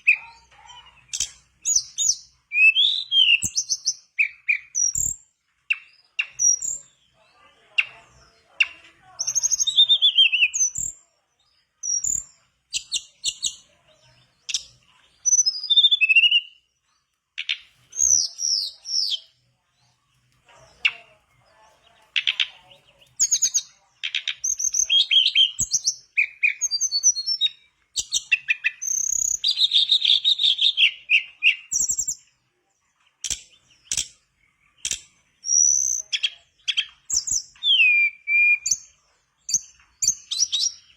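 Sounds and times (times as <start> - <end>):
bird singing whistled phrases: 0.0 - 6.9, 9.2 - 11.0, 14.5 - 16.6, 17.9 - 19.3, 23.2 - 32.2, 35.4 - 38.9
sharp clicks: 17.1 - 17.7, 22.0 - 24.8, 33.2 - 34.2, 34.8 - 35.2.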